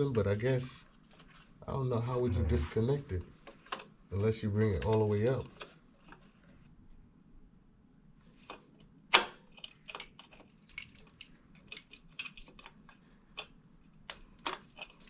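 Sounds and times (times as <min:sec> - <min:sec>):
clicks and knocks of tools: 0:08.4 - 0:15.0.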